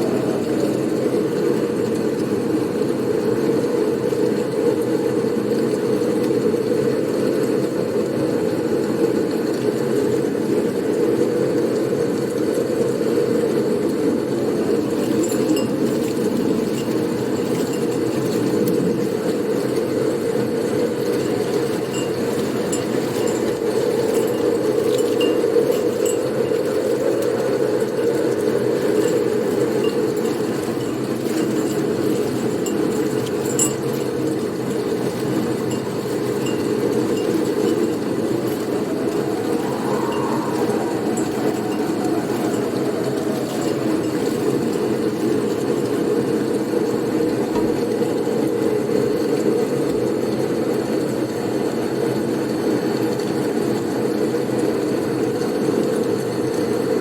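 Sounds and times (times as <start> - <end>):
blizzard wind rushing: 9.8 - 49.6
faint light clinks: 14.8 - 19.8, 21.0 - 46.1.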